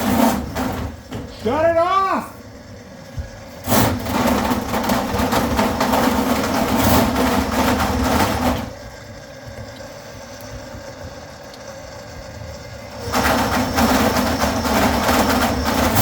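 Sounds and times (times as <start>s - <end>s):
drain-cleaning machine running: 0.0s - 16.0s.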